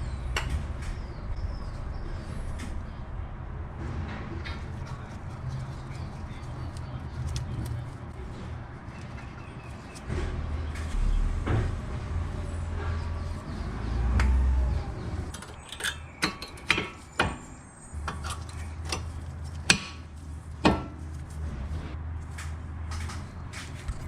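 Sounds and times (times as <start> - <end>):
low rumble: 10.0 - 15.3
metal tools clinking: 15.3 - 17.5.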